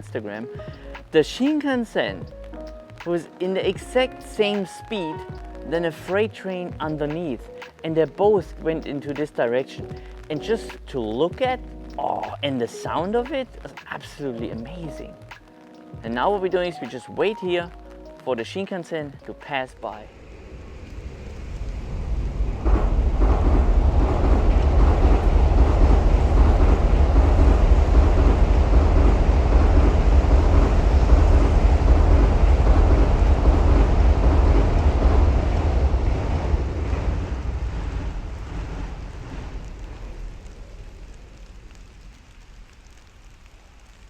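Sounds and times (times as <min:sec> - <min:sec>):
train passing with low rumble: 0:19.8 - 0:44.0.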